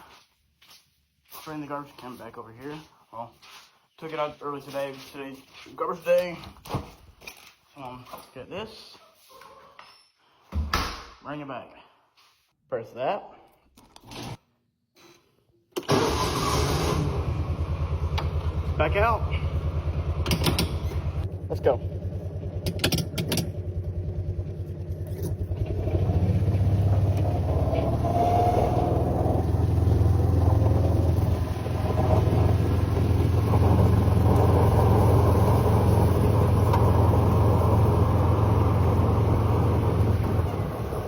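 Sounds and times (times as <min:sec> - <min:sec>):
utility vehicle engine driving: 0:15.9 - 0:41.0.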